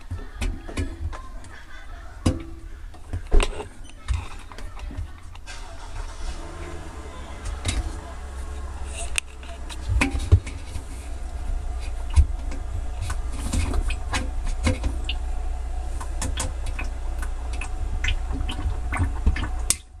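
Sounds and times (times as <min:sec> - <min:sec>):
washing machine drum rumbling: 0:00.0 - 0:20.0.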